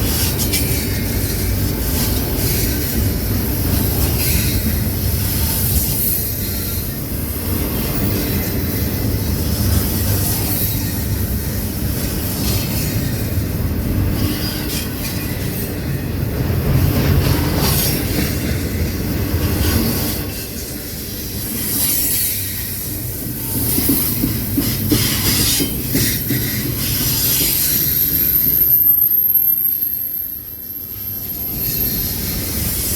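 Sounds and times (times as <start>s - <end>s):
train rumbling past: 0.0s - 32.9s
wheels clacking over rail joints: 14.1s - 28.8s.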